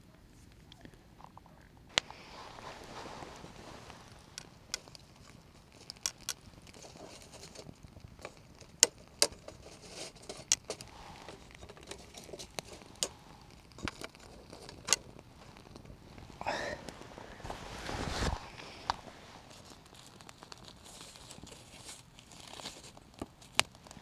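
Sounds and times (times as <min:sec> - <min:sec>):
campfire crackling: 0:00.4 - 0:24.0
fire popping: 0:00.6 - 0:24.0
hiss of burning: 0:01.9 - 0:06.3.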